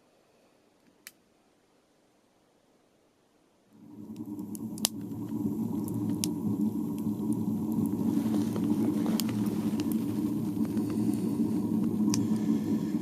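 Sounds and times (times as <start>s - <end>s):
stove low rumble: 3.7s - 13.0s
wood fire crackling: 3.7s - 13.0s.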